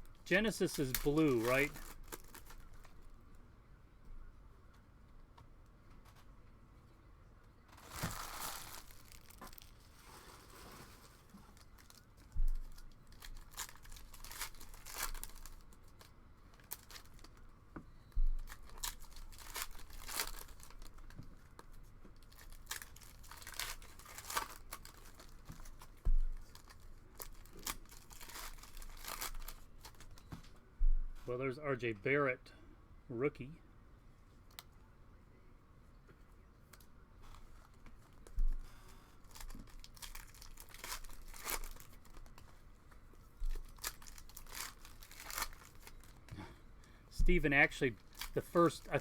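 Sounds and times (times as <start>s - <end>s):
foil wrappers tearing and crinkling: 0.2s - 3.1s, 7.7s - 17.4s, 18.4s - 30.2s, 39.2s - 42.6s, 43.4s - 46.4s, 47.6s - 49.0s.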